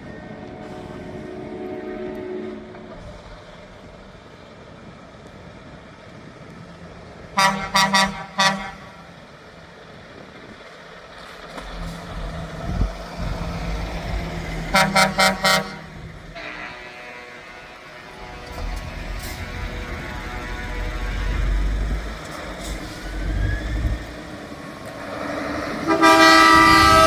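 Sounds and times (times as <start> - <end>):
truck engines rumbling: 0.0 - 27.0
truck air horn blasts: 0.4 - 3.1, 7.4 - 9.1, 14.7 - 23.4, 25.8 - 27.0.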